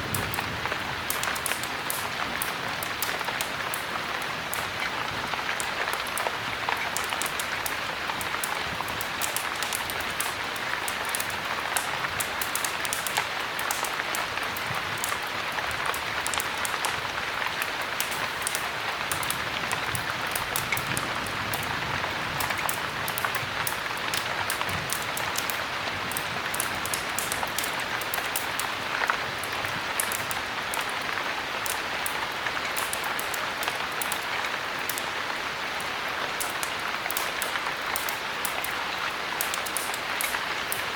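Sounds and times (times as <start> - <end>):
heavy rain: 0.0 - 40.9
sharp rain ticks: 0.0 - 40.9.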